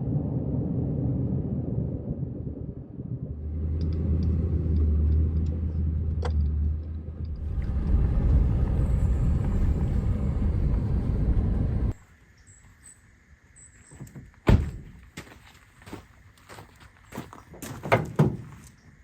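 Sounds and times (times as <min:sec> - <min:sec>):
truck engine running: 0:03.4 - 0:12.0.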